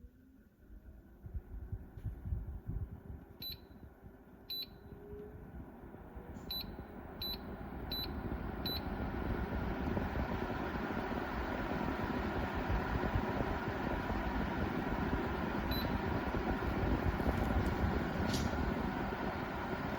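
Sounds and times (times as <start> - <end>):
humidifier fan running: 0.0 - 19.9
humidifier short beeps: 3.3 - 5.5, 6.1 - 9.6, 14.4 - 19.3.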